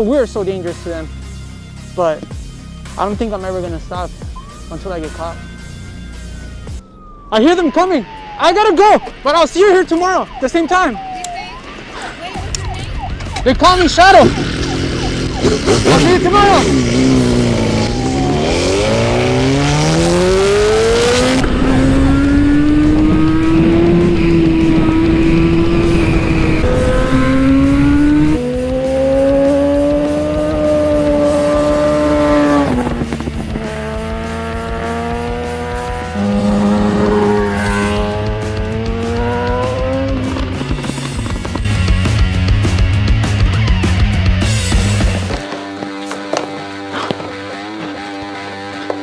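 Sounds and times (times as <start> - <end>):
motorcycle engine accelerating: 12.4 - 49.0.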